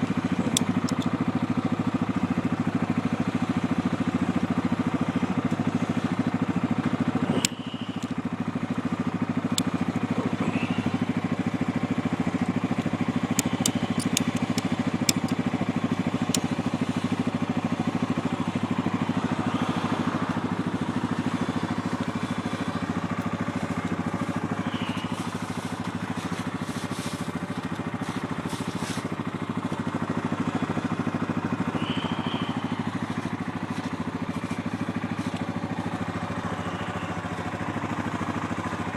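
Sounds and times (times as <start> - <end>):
atv engine running: 0.0 - 38.9
sharp click: 0.5 - 1.1, 13.3 - 15.5
sharp ticks: 0.5 - 1.2, 7.4 - 8.2, 12.4 - 15.5.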